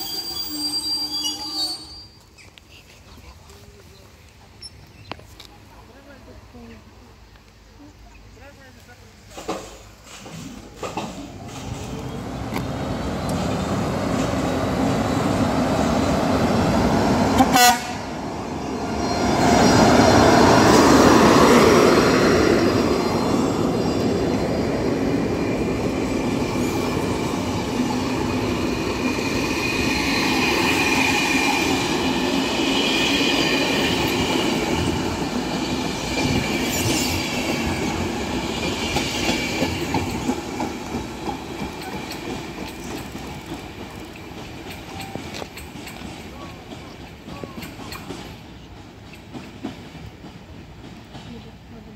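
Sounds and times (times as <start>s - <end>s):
train wheels squealing: 0.0s - 2.5s, 18.3s - 40.6s, 44.6s - 49.5s
train rumbling: 0.0s - 51.9s.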